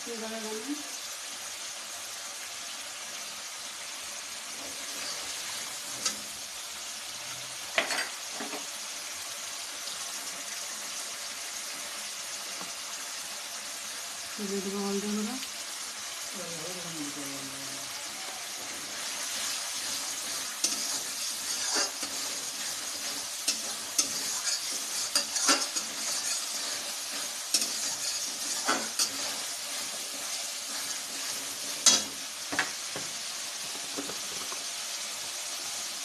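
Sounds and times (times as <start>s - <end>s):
food sizzling in oil: 0.0s - 36.0s
spatula knocking and scraping pan: 18.6s - 34.7s.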